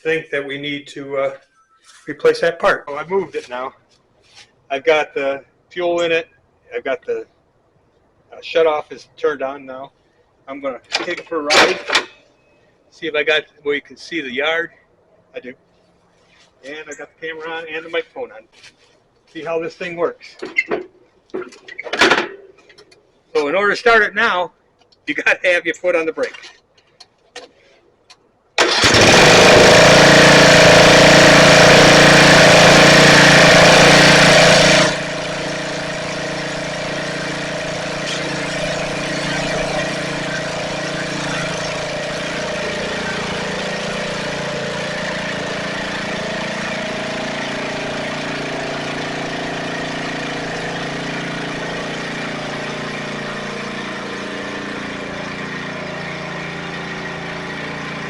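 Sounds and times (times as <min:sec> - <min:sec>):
riding mower engine running: 0:28.6 - 0:58.0.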